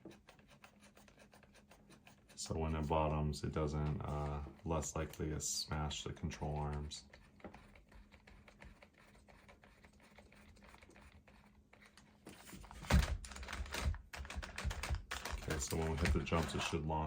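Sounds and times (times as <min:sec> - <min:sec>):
handling and rubbing noise: 0:00.0 - 0:17.0
plastic parts clicking: 0:12.9 - 0:16.7.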